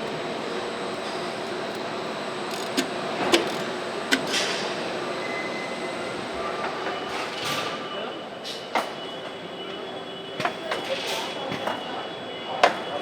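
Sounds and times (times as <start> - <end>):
machinery hum: 0.0 - 7.4.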